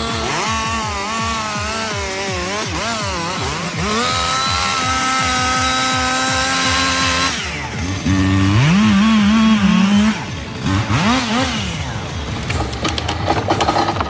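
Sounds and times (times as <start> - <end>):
chainsaw engine revving: 0.0 - 14.0.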